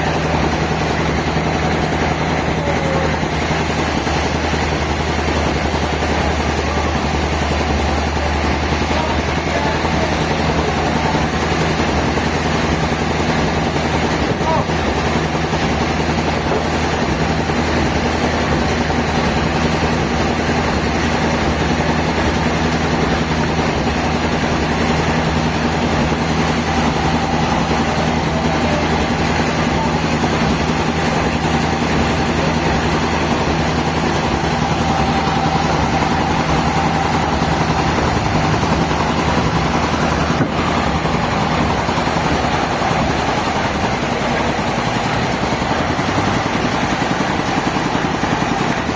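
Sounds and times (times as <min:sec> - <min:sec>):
sawmill machinery drone: 0:00.0 - 0:48.9.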